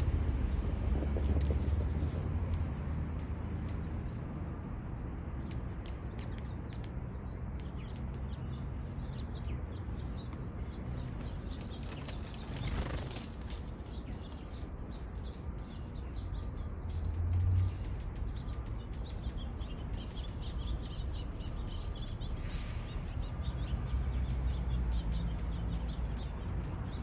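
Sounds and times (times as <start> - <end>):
steady low rumble: 0.0 - 7.7
small birds chirping: 0.0 - 27.0.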